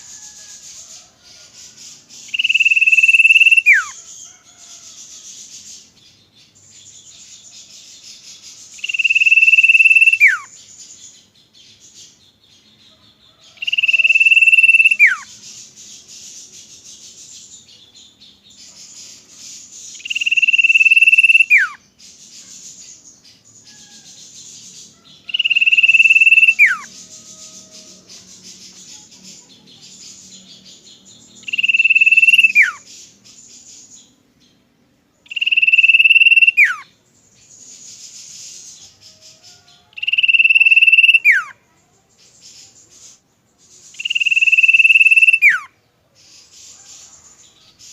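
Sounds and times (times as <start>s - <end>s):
faint high hiss of insects: 0.0s - 47.9s
bird high whistling call: 2.2s - 4.0s, 8.8s - 10.6s, 13.6s - 15.3s, 19.9s - 21.8s, 25.3s - 28.3s, 31.4s - 32.9s, 35.3s - 36.9s, 39.9s - 41.6s, 43.9s - 45.7s.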